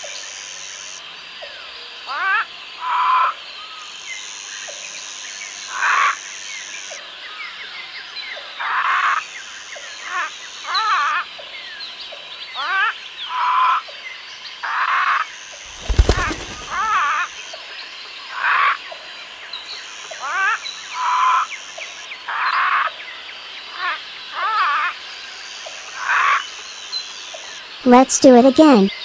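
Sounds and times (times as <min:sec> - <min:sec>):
small bird chirps: 0:15.6 - 0:17.2.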